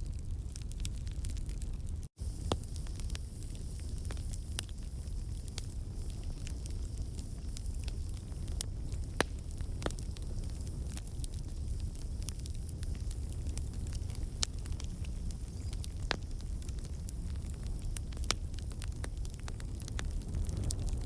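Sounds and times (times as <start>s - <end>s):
logs popping and crackling: 0.0s - 21.0s
campfire flame rushing: 2.2s - 21.0s.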